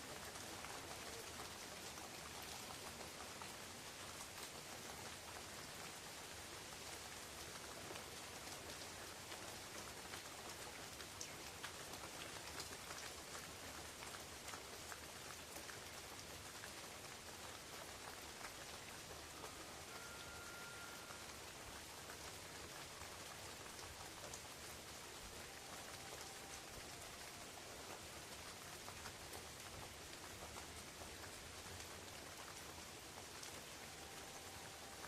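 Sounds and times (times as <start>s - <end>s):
rain on leaves: 0.0s - 35.0s
faint thin whistle-like tone: 19.3s - 21.4s.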